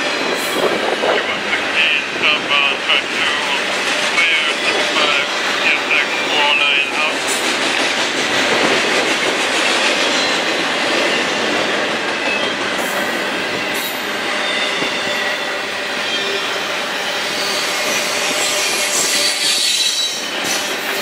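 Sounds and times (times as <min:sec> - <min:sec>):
train wheels on rail: 0:00.0 - 0:21.0
high-pitched wheel squeal: 0:17.3 - 0:20.4.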